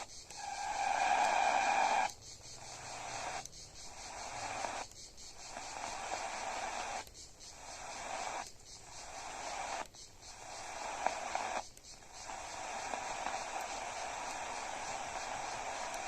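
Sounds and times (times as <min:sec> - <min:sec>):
radio static hiss: 0:00.0 - 0:16.0
whistling tone: 0:00.4 - 0:02.1.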